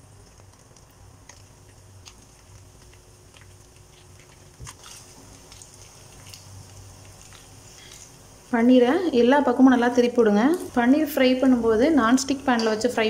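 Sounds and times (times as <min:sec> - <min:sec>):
wooden spatula turning food: 0:00.0 - 0:08.5
cheese cubes sizzling in oil: 0:00.0 - 0:13.0
low steady hum: 0:00.0 - 0:13.0.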